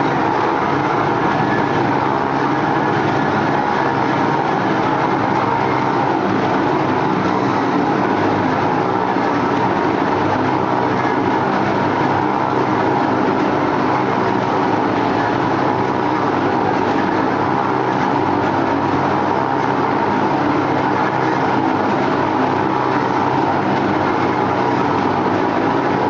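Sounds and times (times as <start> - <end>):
motorcycle engines droning: 0.0 - 26.0.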